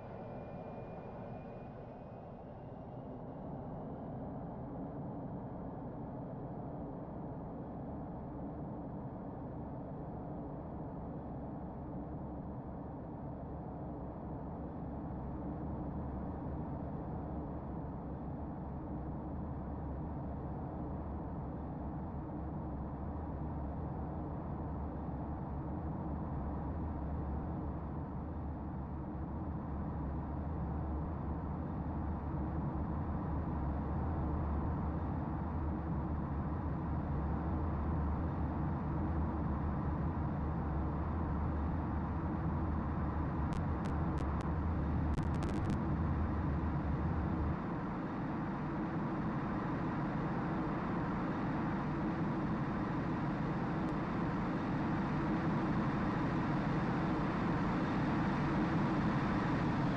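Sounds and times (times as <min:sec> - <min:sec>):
deep low hum: 0:43.6 - 0:46.0
engine noise: 0:45.2 - 0:45.8.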